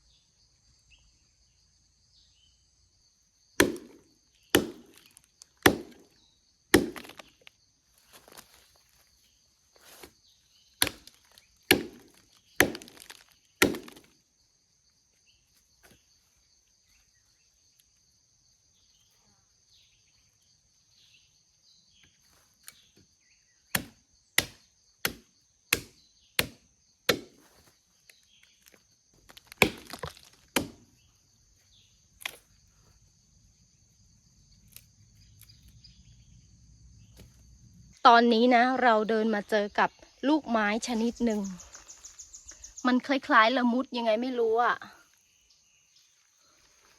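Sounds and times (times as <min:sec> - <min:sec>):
high insect drone: 0:00.0 - 0:46.9
axe chopping wood: 0:03.6 - 0:07.5, 0:10.8 - 0:14.1, 0:23.7 - 0:27.7, 0:29.2 - 0:31.0.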